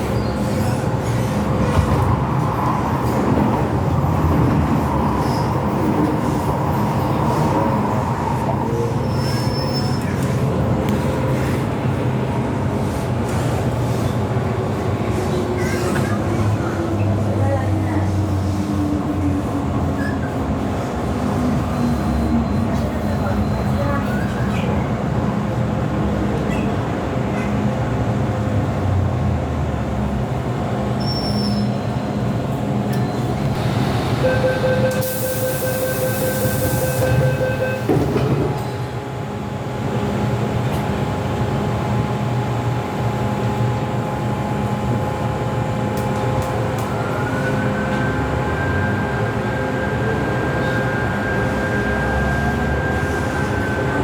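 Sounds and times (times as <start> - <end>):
metro train rumbling: 0.0 - 54.0.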